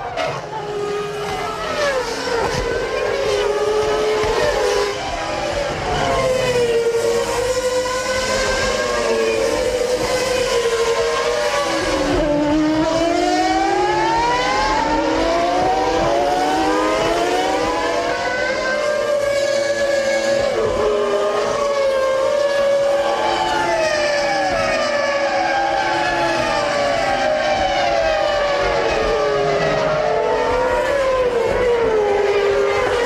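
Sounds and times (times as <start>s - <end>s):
racing car engines: 0.0s - 33.0s.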